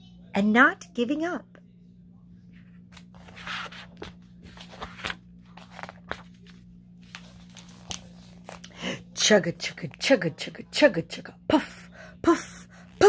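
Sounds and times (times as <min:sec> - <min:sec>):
low electrical hum: 0:00.0 - 0:13.0
paper pages rustling: 0:02.6 - 0:08.8.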